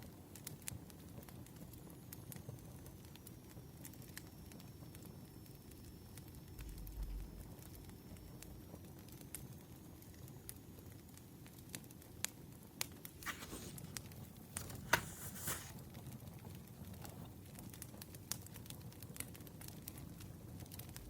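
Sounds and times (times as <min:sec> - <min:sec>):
wood fire crackling and popping: 0:00.0 - 0:21.0
brief rustling: 0:13.2 - 0:15.8.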